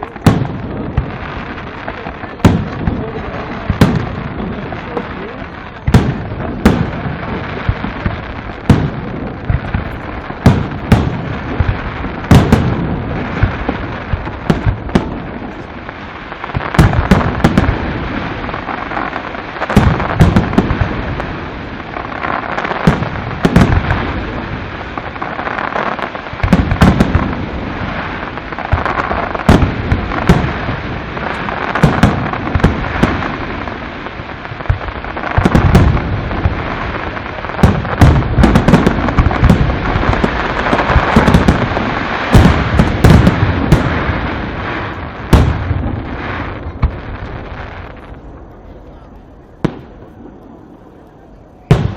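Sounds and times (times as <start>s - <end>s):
fireworks crackling hiss: 0.0s - 51.9s.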